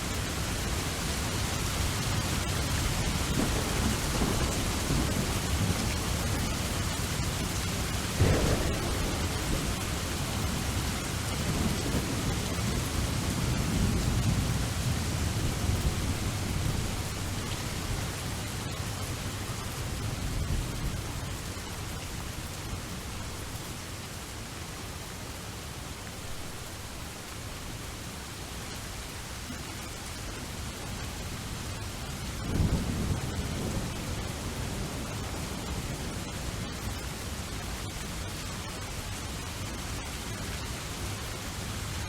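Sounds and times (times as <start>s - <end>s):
steady rain falling: 0.0s - 42.0s
rolling thunder: 2.0s - 21.4s, 32.4s - 36.3s.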